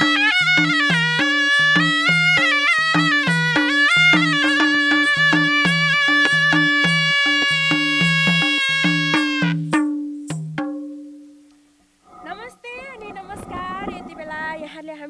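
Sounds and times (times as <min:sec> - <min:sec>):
shawm holding a long note: 0:00.0 - 0:09.7
hand drum strokes: 0:00.0 - 0:11.5.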